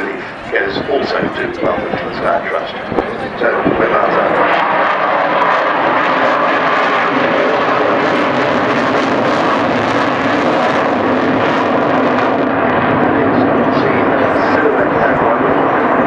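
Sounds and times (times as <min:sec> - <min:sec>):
loud jet roar: 0:00.0 - 0:16.0.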